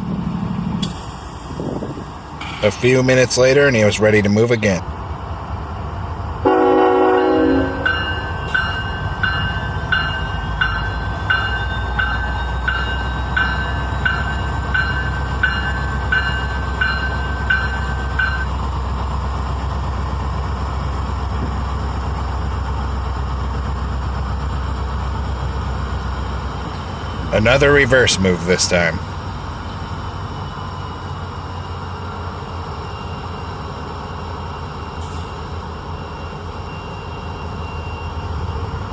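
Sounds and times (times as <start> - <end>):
locomotive engines rumbling: 0.0 - 38.9
locomotive horn blast: 6.4 - 8.0
bell ringing: 7.2 - 18.6.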